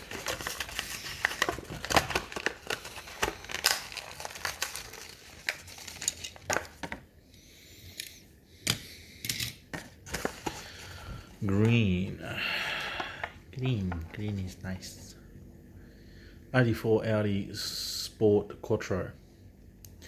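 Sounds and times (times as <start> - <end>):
plastic packaging crinkling and tearing: 0.0 - 7.1.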